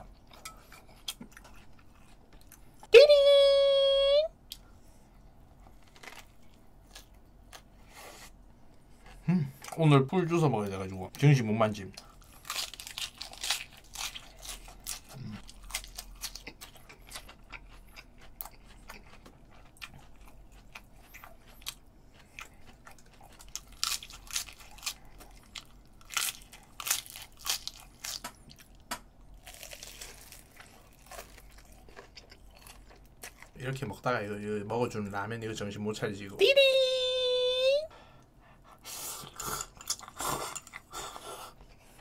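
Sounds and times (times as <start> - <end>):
chewing crunching lettuce: 5.6 - 7.7, 11.8 - 34.2.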